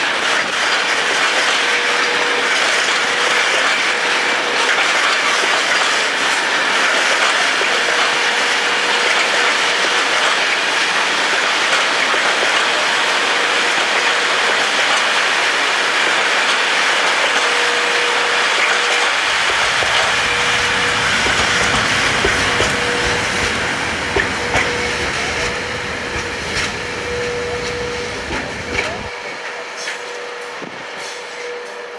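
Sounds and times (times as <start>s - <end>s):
freight wagons wheels on rail: 0.0s - 31.9s
wheels clicking over rail joints: 18.6s - 29.1s.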